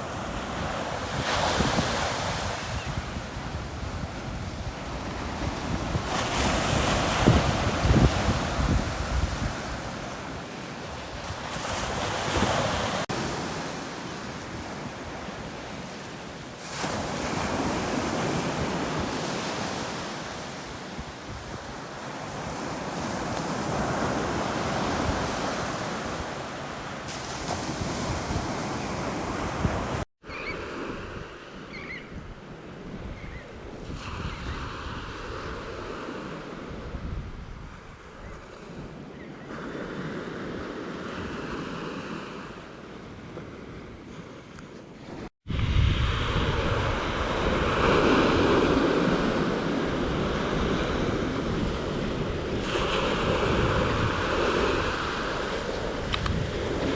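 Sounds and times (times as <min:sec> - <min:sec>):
wind buffeting microphone: 0:00.0 - 0:15.9, 0:16.7 - 0:30.0, 0:36.6 - 0:39.0, 0:45.4 - 0:56.9
waves breaking on beach: 0:00.0 - 0:31.6, 0:38.6 - 0:56.9.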